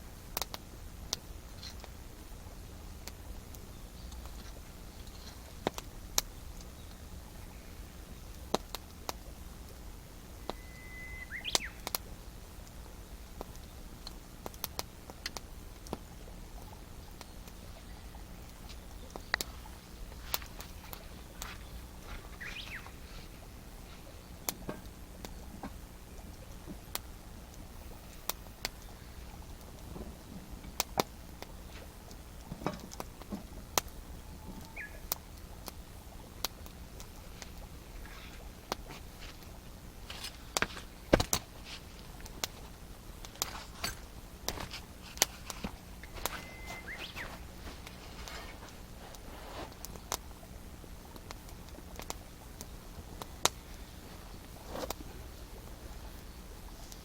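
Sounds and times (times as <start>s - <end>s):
campfire crackling and popping: 0.0s - 57.0s
thin rising whistle: 10.4s - 11.8s, 46.0s - 47.4s
bird chirping: 10.4s - 11.9s, 18.9s - 24.5s, 34.2s - 35.1s, 46.0s - 47.6s.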